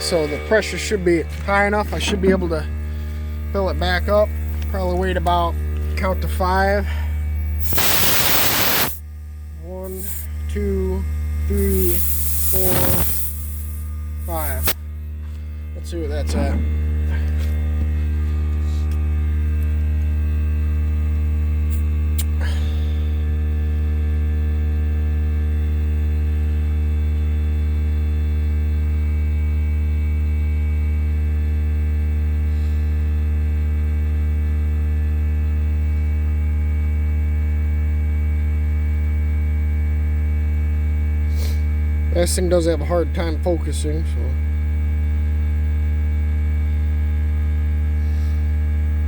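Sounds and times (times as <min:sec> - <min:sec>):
air compressor humming: 0:00.0 - 0:25.0.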